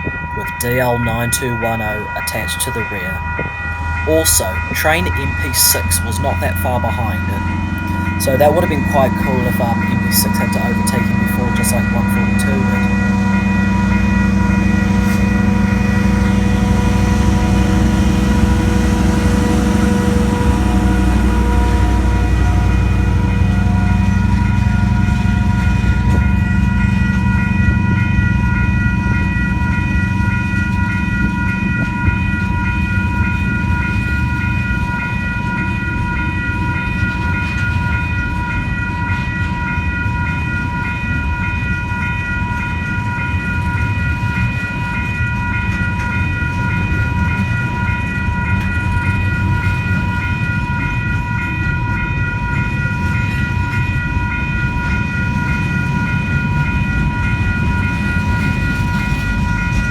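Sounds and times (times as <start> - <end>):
diesel locomotive rumble: 0.0 - 59.9
level crossing alarm bells ringing: 0.0 - 59.9.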